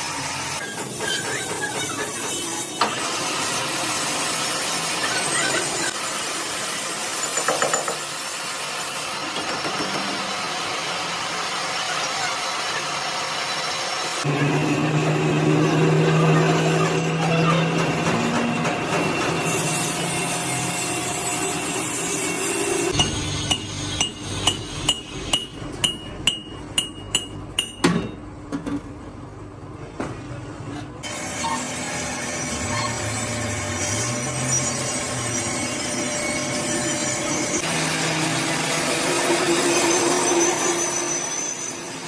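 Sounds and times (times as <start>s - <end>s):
steady machine noise: 9.7s - 25.4s, 31.0s - 41.4s
hammer striking steel: 22.9s - 28.2s.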